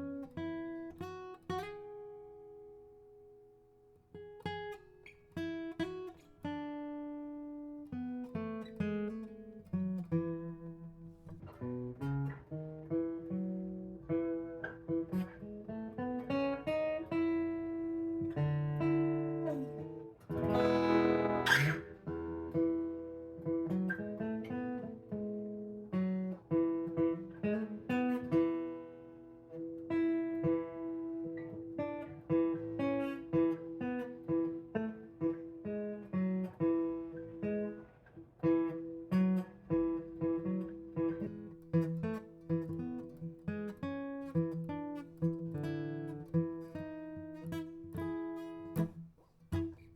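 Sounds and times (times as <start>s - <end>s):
fingerstyle acoustic guitar: 0.0s - 49.9s
loud strummed guitar chord: 20.3s - 22.3s.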